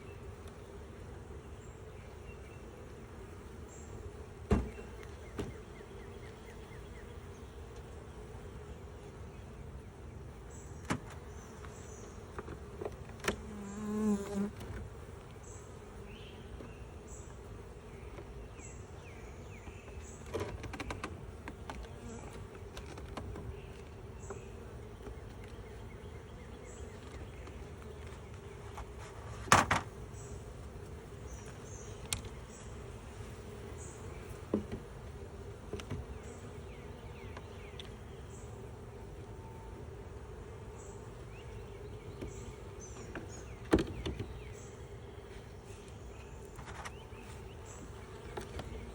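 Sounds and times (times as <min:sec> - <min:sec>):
honey bees buzzing: 0:00.0 - 0:48.9.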